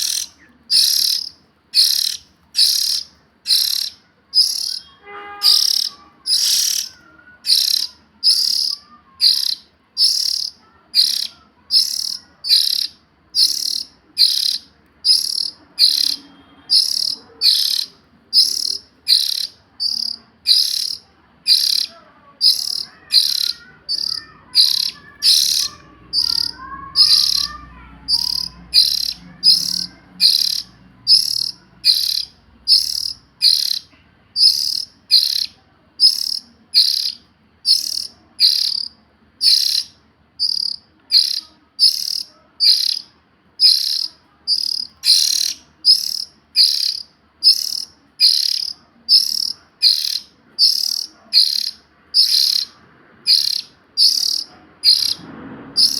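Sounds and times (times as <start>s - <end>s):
bird rasping call: 0.0s - 55.9s.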